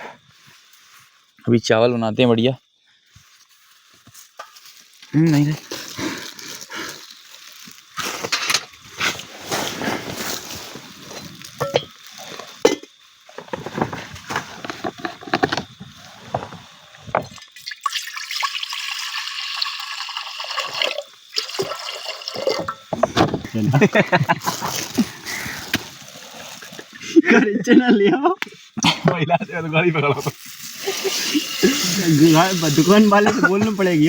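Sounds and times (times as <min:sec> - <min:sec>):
water pouring: 0:17.2 - 0:23.0, 0:30.2 - 0:34.0
water sloshing in a pot: 0:17.2 - 0:23.3.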